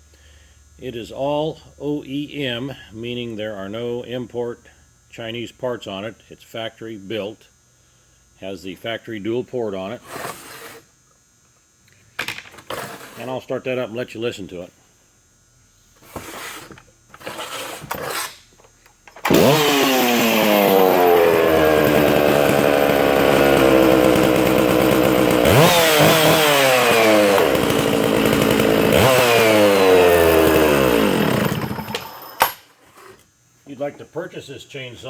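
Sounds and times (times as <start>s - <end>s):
chainsaw revving: 19.2s - 32.6s.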